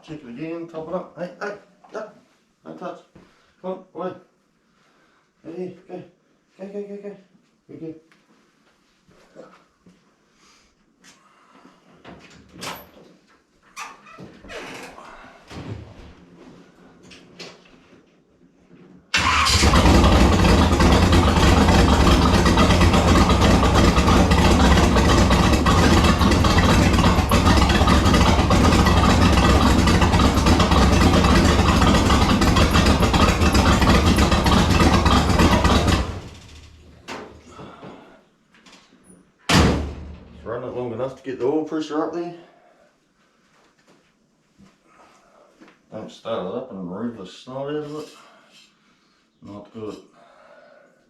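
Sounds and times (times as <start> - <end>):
car engine running: 19.5 - 36.8.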